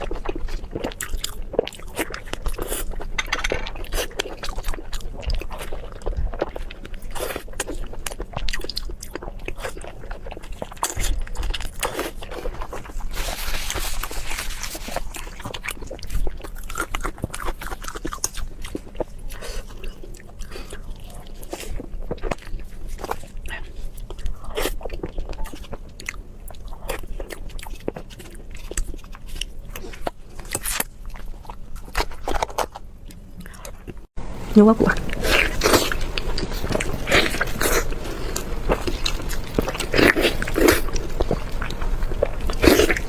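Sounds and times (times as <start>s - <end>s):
wet chewing and crunching: 0.0s - 43.0s.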